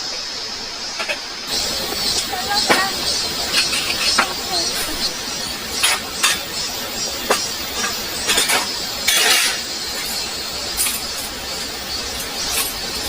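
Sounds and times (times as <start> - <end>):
heavy rain: 0.0 - 13.0
clattering rattle: 7.3 - 10.2.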